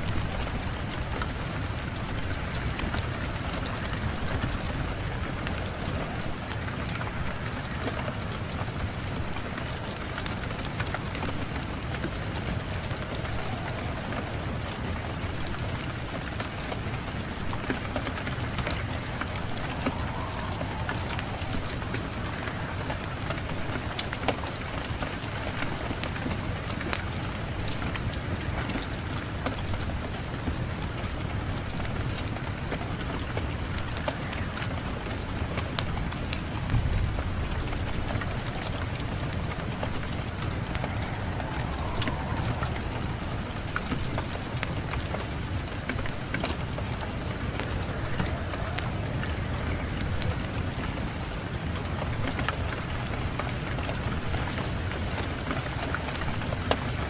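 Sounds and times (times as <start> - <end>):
wind rushing: 0.0 - 28.0, 36.6 - 51.6
wood fire crackling: 0.0 - 57.0.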